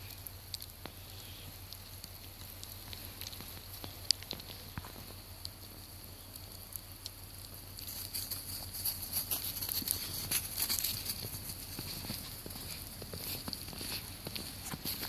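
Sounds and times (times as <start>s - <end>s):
footsteps crunching in snow: 7.8s - 15.0s.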